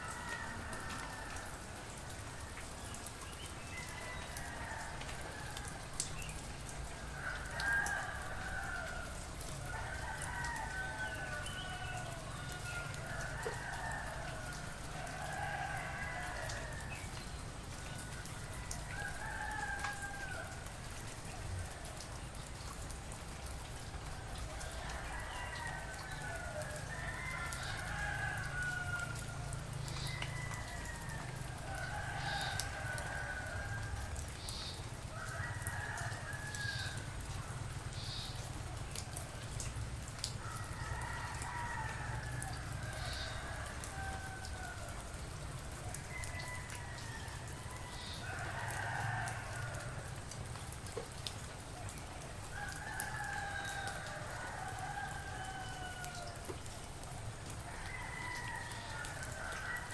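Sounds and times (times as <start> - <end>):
soft rain hiss: 0.0 - 59.9
roosters crowing: 24.6 - 34.2, 40.4 - 45.2, 45.8 - 50.2, 52.5 - 56.7, 57.4 - 59.9.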